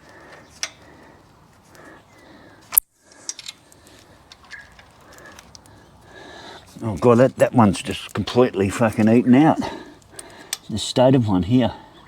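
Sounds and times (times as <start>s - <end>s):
hand tools clicking: 0.1s - 0.9s, 2.7s - 5.7s, 10.0s - 10.8s.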